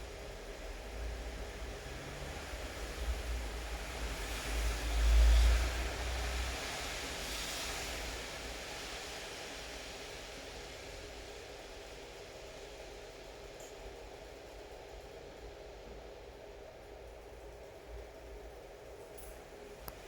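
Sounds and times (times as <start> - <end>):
rain hiss: 1.8 - 14.9.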